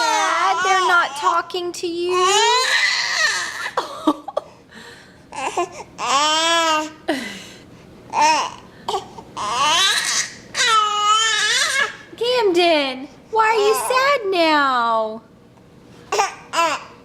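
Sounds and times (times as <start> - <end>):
baby fussing and crying: 0.0 - 1.4, 2.1 - 3.8, 5.3 - 7.1, 8.1 - 12.0, 16.1 - 17.0.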